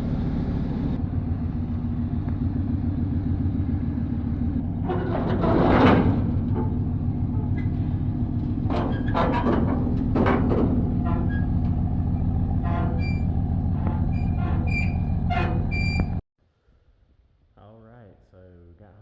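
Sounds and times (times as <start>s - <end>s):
vehicle rumble from inside cab: 0.0s - 16.2s
knocks and rattles: 4.8s - 16.2s
brief squeaks: 12.6s - 16.2s.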